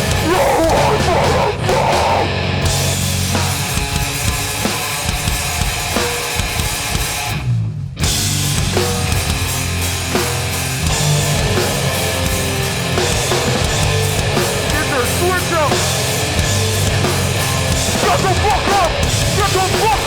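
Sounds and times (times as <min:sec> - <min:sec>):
distorted guitars: 0:00.0 - 0:20.0
heavy hardcore band playing: 0:00.0 - 0:20.0
pounding drum kit: 0:00.0 - 0:20.0.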